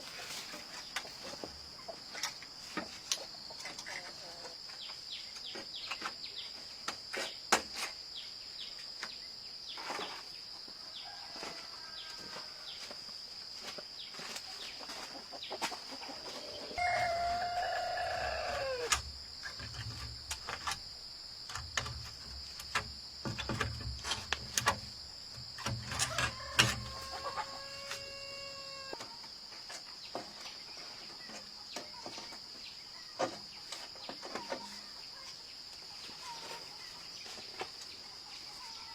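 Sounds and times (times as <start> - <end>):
rooster crowing: 10.8 - 12.7, 16.5 - 19.0, 26.0 - 29.0
high insect drone: 15.8 - 37.3.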